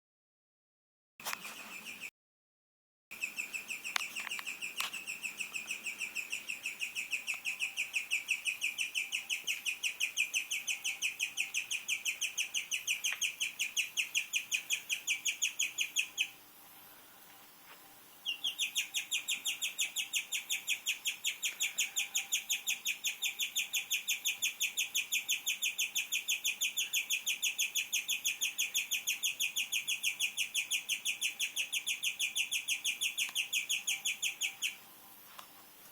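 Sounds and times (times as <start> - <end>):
guinea pig chirping: 3.1 - 16.4, 18.2 - 34.8.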